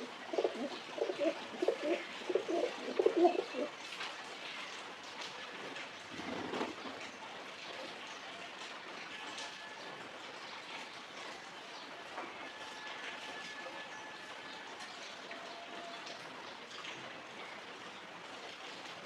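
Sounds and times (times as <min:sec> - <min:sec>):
pigeons cooing: 0:00.0 - 0:03.8.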